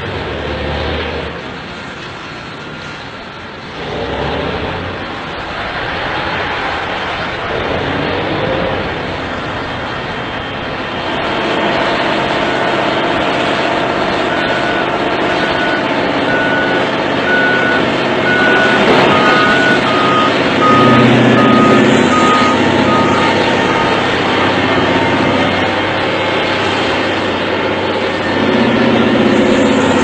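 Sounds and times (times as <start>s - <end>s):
heavy machinery engines: 0.0s - 30.0s
reversing alarms beeping: 14.0s - 25.8s.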